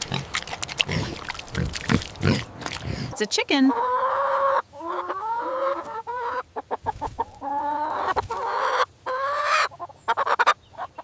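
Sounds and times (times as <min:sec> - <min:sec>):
chicken clucking: 0:03.1 - 0:11.0
chicken calling: 0:03.2 - 0:11.0.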